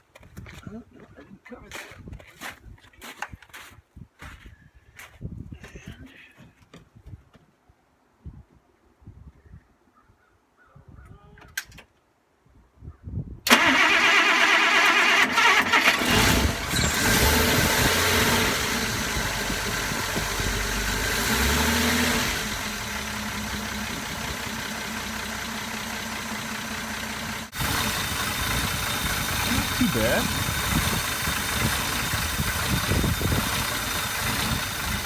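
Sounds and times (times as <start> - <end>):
starter cranking: 13.5 - 18.0, 27.5 - 35.0
car engine idling: 13.6 - 35.0.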